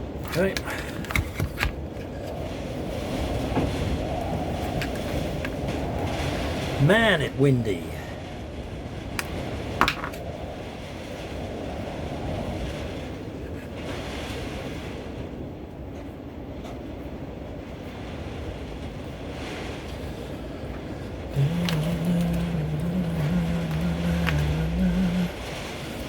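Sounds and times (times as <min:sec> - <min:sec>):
wind gusting: 0:00.0 - 0:26.0
low steady drone: 0:21.2 - 0:26.0.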